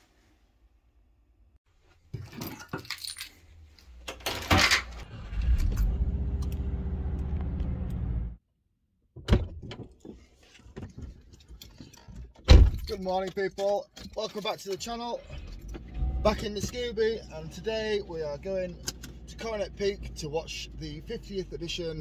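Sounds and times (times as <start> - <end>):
keys jangling: 2.2 - 4.8.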